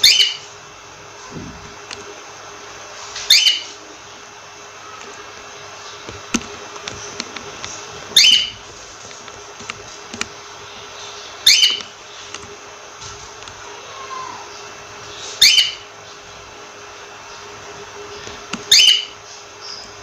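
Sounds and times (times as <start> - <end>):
cockatiel calling: 0.0 - 0.5, 3.3 - 3.8, 8.2 - 8.6, 11.4 - 11.9, 15.4 - 15.8, 18.7 - 19.8
steady background hum: 0.0 - 20.0.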